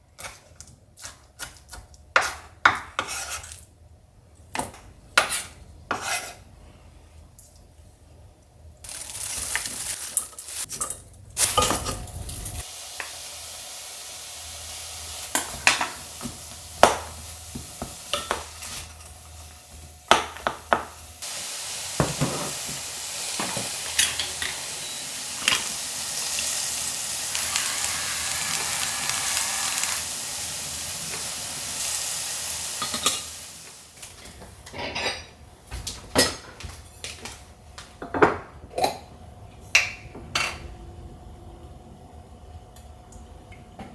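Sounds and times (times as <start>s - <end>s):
food sizzling in a pan: 8.8s - 10.7s, 11.4s - 34.2s
utensils clinking and scraping: 8.9s - 12.6s.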